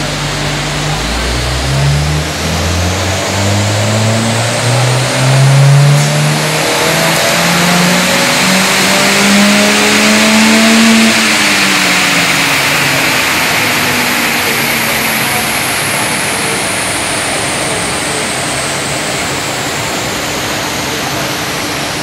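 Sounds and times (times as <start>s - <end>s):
car engine revving up: 0.0s - 22.0s.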